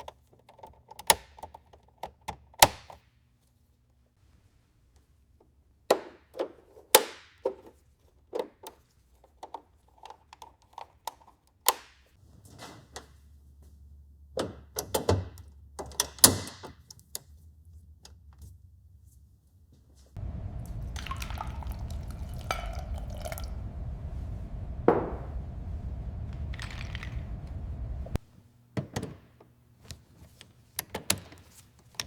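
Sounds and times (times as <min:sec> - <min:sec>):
low steady hum: 0:20.2 - 0:28.2.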